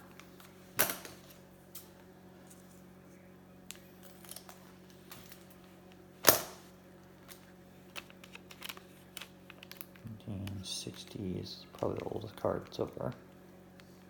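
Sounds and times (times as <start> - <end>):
faint steady hum: 0.0 - 14.0
cards clicking and rustling: 7.2 - 13.2.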